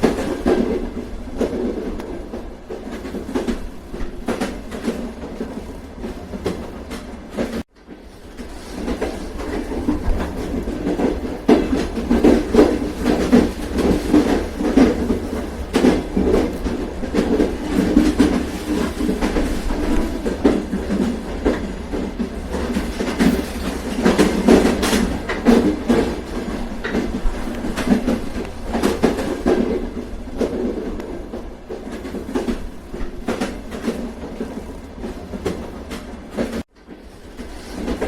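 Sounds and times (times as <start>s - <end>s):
train rumble: 0.0s - 38.0s
wheels clacking over rail joints: 0.0s - 38.0s.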